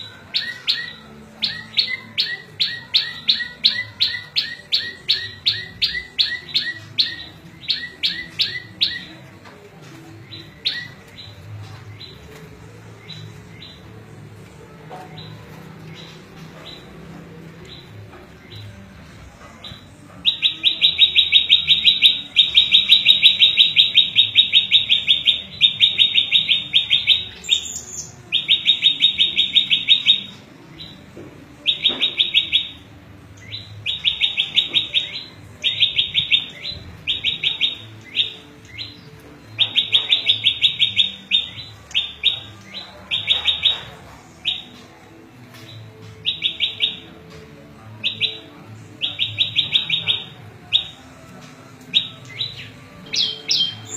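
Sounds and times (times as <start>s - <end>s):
songbird trilling: 19.7s - 31.0s, 33.4s - 44.8s, 46.2s - 47.2s, 48.0s - 51.0s, 51.9s - 53.9s.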